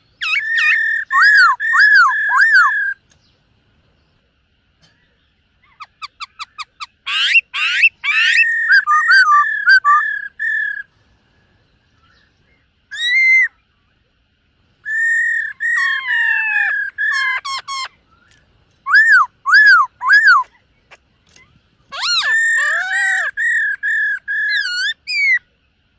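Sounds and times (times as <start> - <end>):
bird singing whistled phrases: 0.2 - 3.0, 5.7 - 10.9, 12.9 - 13.6, 14.8 - 20.5, 21.3 - 25.5.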